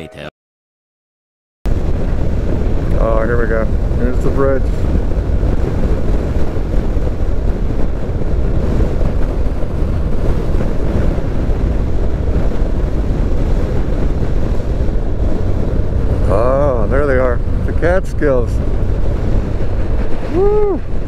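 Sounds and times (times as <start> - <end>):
wind rush on microphone: 1.7 - 21.0
motorcycle running: 4.9 - 21.0.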